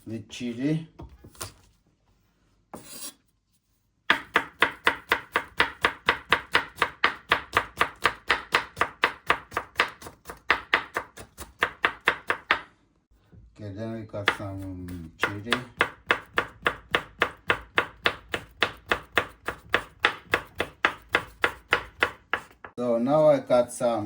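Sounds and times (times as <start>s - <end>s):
knife chopping garlic: 4.1s - 12.7s, 14.2s - 22.8s.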